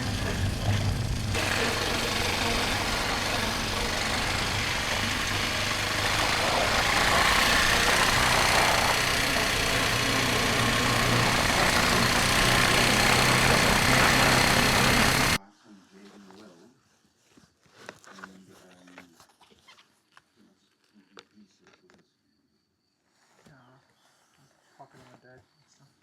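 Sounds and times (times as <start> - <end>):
motorcycle engine running: 0.0 - 15.4
wind and road noise: 0.0 - 15.4.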